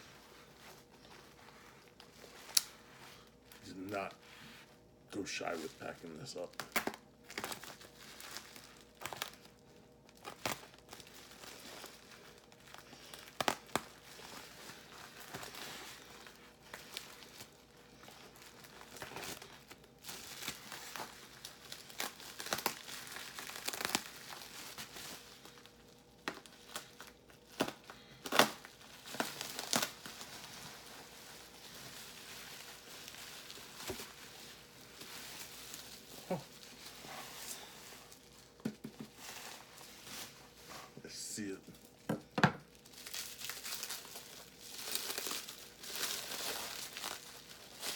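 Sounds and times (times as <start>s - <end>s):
packing material crinkling: 0.0s - 47.9s
packing material tearing: 0.2s - 4.2s, 5.2s - 38.6s, 42.6s - 47.9s.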